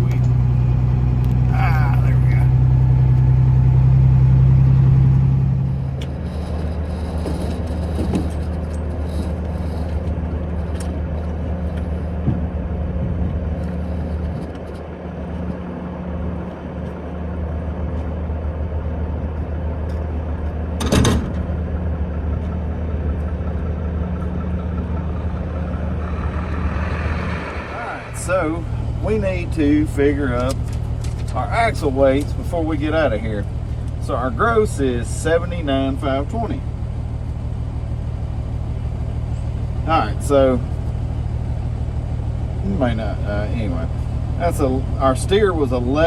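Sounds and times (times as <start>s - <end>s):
truck diesel engine running: 0.0s - 46.0s
short burst of noise: 25.0s - 29.2s.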